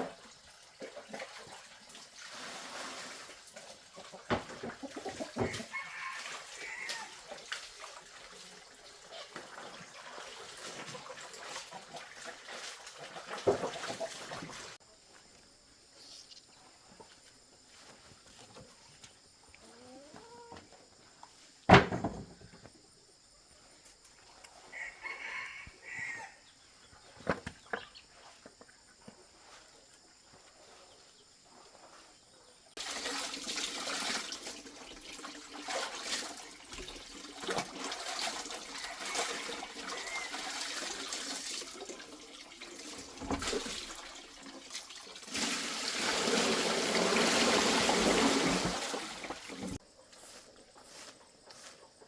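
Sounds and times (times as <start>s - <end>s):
rushing water: 32.8s - 49.8s.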